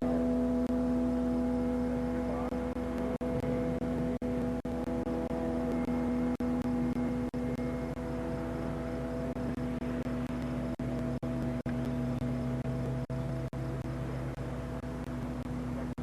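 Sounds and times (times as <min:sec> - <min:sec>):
two-stroke aircraft engine droning: 0:00.0 - 0:16.0.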